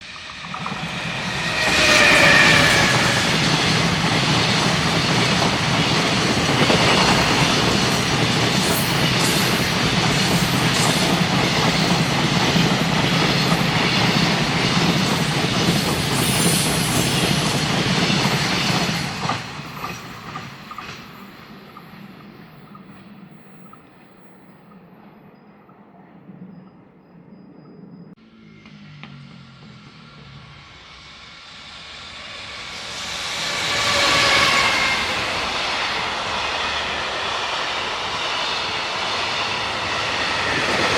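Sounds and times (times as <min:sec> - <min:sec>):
locomotive whining tone: 0:00.1 - 0:08.1.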